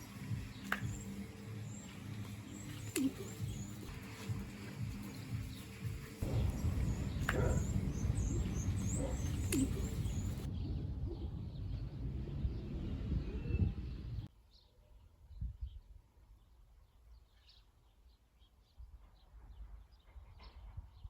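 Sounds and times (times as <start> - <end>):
small birds chirping: 0.0 - 21.0
heavy low rumbling: 3.4 - 14.3.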